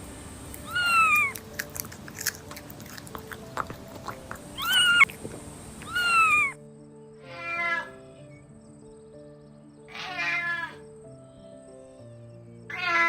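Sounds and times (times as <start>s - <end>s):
soft background music: 0.0s - 13.0s
rustling chewing noise: 0.4s - 6.6s
kitten meowing: 0.6s - 1.4s, 4.5s - 5.1s, 5.8s - 6.6s, 7.2s - 8.0s, 9.9s - 10.8s, 12.7s - 13.0s.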